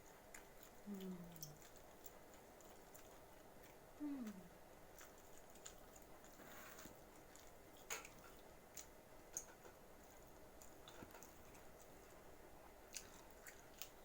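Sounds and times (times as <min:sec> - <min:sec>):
faint chewing: 0:00.0 - 0:14.0
soft mouth clicks: 0:00.9 - 0:01.6.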